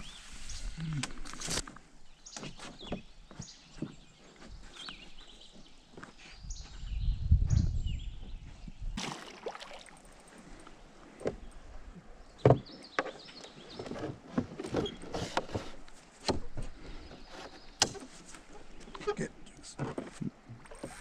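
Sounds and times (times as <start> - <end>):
knocks against a small boat: 12.4 - 13.2.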